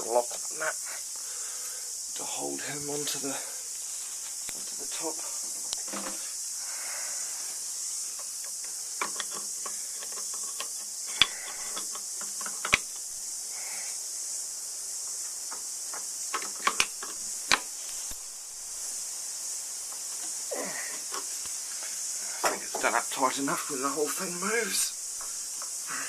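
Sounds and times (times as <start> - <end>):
steady high hiss: 0.0 - 26.0
spanner clicking and knocking on metal: 8.1 - 13.1, 15.5 - 17.7.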